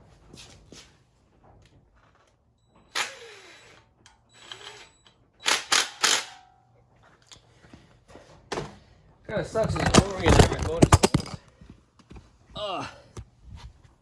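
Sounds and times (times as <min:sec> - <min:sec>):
phone clattering onto floor: 0:09.6 - 0:11.4.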